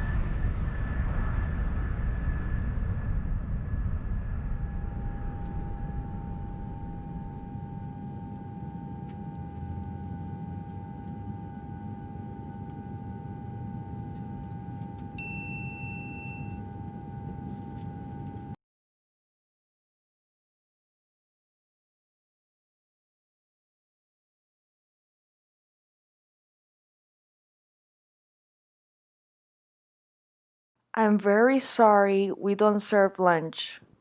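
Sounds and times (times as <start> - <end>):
airliner engine rumble: 0.0 - 15.2, 15.9 - 18.6
steady cabin hum: 4.0 - 18.6
cabin chime ding: 15.1 - 17.5.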